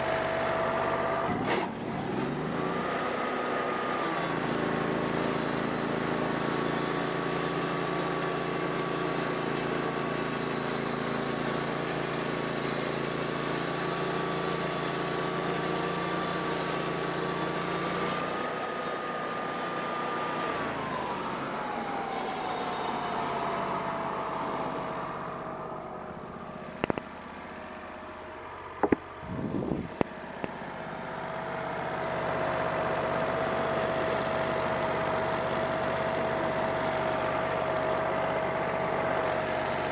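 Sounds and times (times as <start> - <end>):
band sawmill whining: 0.0 - 39.9
sharp knocks: 28.8 - 29.1.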